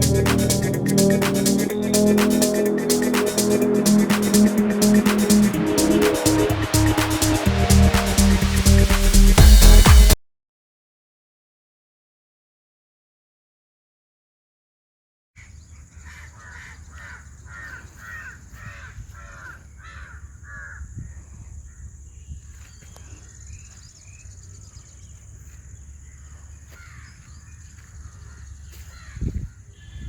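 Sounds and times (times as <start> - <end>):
low rumble: 0.0 - 10.2
bird calling: 15.4 - 25.2.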